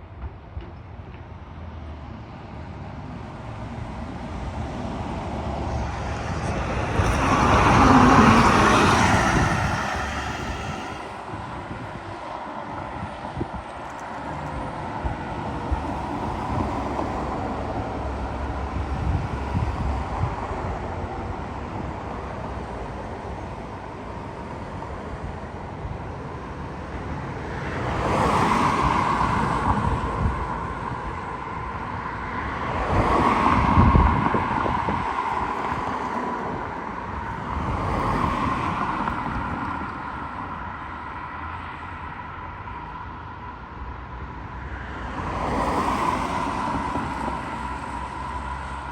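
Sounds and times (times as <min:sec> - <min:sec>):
vehicles driving past: 0:00.2 - 0:48.9
wind on microphone: 0:03.7 - 0:23.8, 0:27.2 - 0:40.6.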